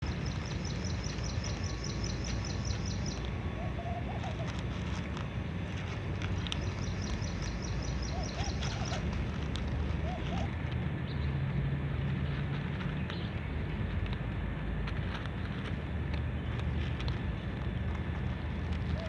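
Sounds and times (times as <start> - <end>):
steady low rumble: 0.0 - 19.0
dove cooing: 3.1 - 10.8, 18.2 - 19.0
bird chirping rapidly: 6.6 - 9.1.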